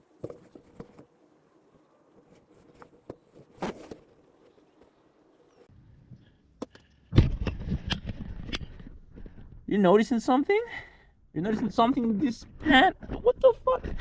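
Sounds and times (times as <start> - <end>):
clattering and rustling: 0.1 - 1.2, 2.1 - 5.0.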